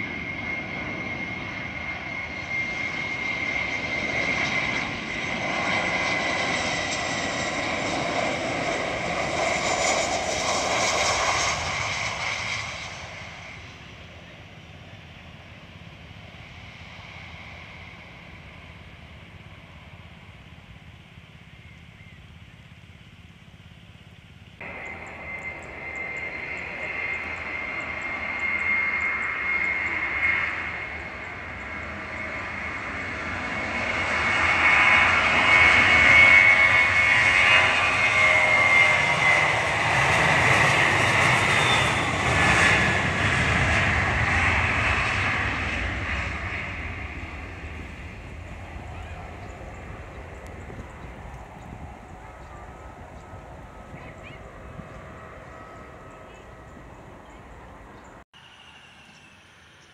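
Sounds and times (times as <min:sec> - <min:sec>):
jet engines whining and roaring: 0:00.0 - 0:59.9
faint rumble: 0:38.7 - 0:58.2.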